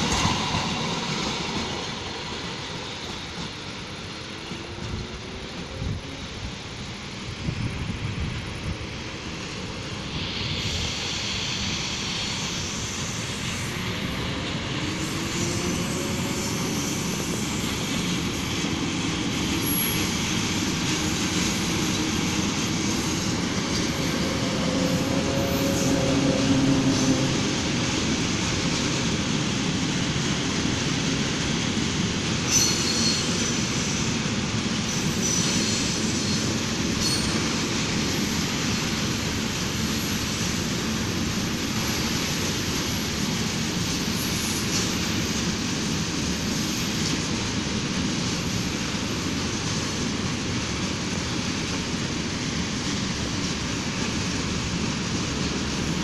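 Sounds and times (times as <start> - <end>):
train wheels rumbling on rail: 0.0 - 56.0
high wheel squeal: 32.5 - 34.0, 34.8 - 37.6.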